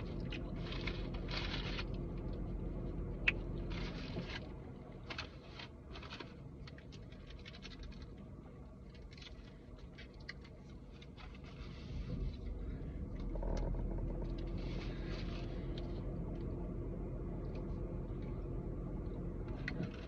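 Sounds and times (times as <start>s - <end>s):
low steady hum: 0.0s - 20.0s
food wrappers rustling: 0.3s - 2.0s, 5.1s - 12.6s.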